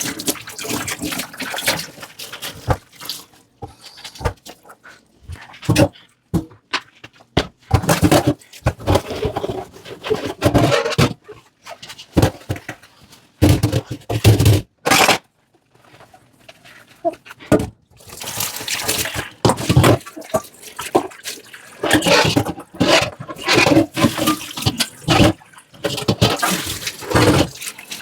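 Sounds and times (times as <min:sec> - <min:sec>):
dishes scraping and clattering: 0:18.8 - 0:28.0.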